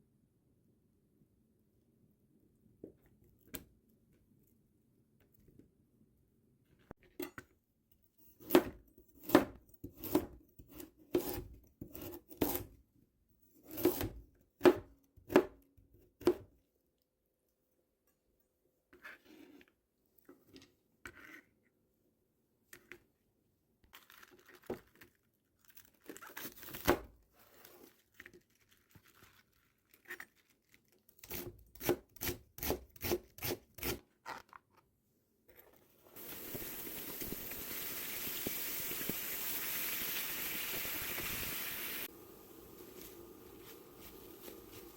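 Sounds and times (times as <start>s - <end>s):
knife chopping on cutting board: 8.4s - 12.7s, 13.7s - 15.6s.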